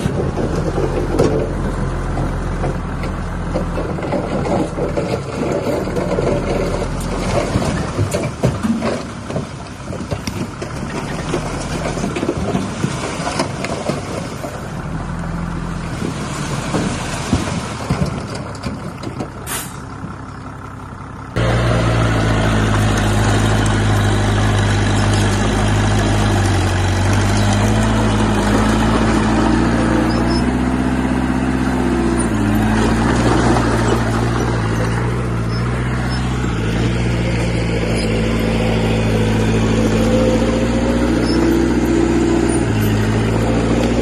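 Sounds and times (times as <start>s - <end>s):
metal clanking and knocking: 0.0s - 14.2s
diesel machinery engine: 0.0s - 44.0s.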